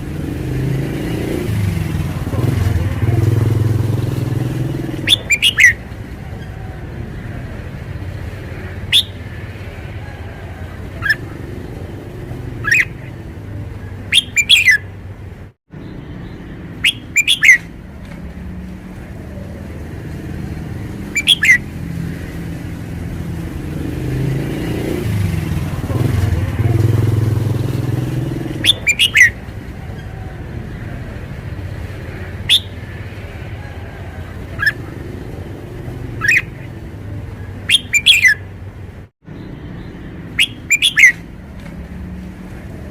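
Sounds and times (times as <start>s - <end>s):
bird singing sharp notes: 4.0s - 5.8s, 8.9s - 9.3s, 12.6s - 13.2s, 14.1s - 14.9s, 15.8s - 17.7s, 21.1s - 21.6s, 27.9s - 29.4s, 32.4s - 32.8s, 36.1s - 36.7s, 37.7s - 38.4s, 39.4s - 41.3s.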